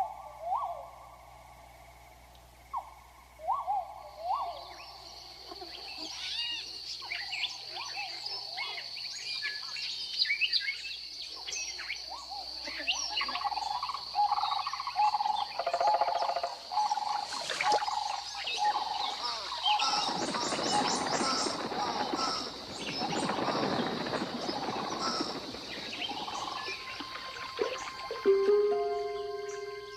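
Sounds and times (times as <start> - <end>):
low repeated trilling call: 12.2 - 29.9
high-pitched insect drone: 12.6 - 29.9
birds chirping and whistling: 16.8 - 29.9.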